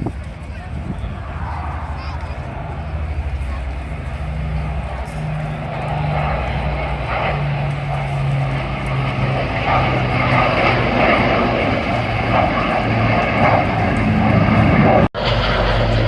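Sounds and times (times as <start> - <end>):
propeller aircraft engines droning: 0.0 - 16.0.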